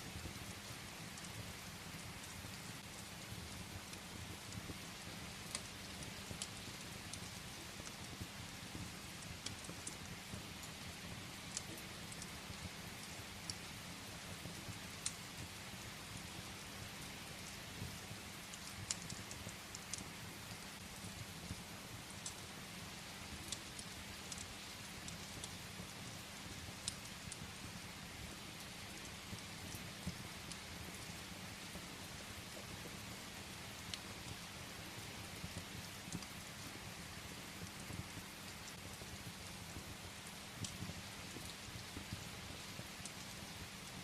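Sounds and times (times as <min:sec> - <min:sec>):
firewood crackling in fireplace: 0:00.0 - 0:44.0
steady rain: 0:00.0 - 0:44.0.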